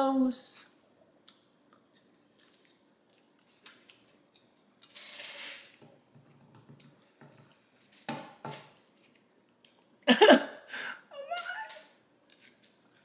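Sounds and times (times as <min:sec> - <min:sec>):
person chewing food: 0:01.1 - 0:05.0, 0:12.2 - 0:13.0.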